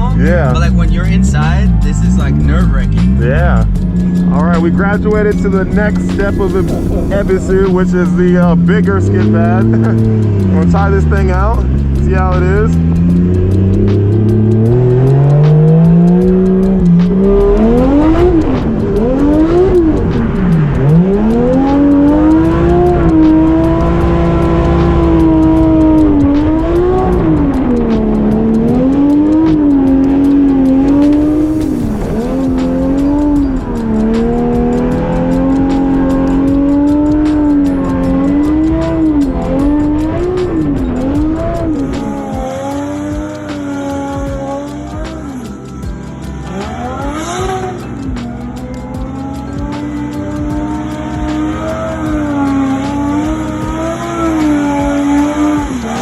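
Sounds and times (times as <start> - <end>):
car engine revving hard: 0.0 - 56.0.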